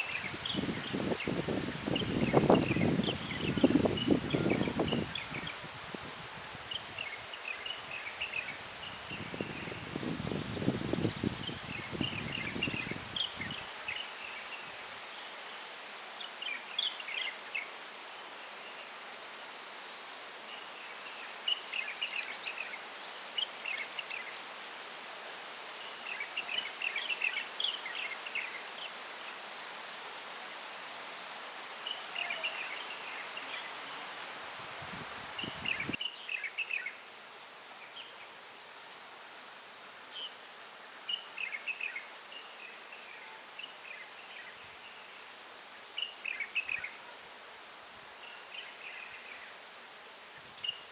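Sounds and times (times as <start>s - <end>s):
wind hissing: 0.0s - 15.1s, 32.6s - 36.0s
leaves rustling: 0.0s - 50.9s.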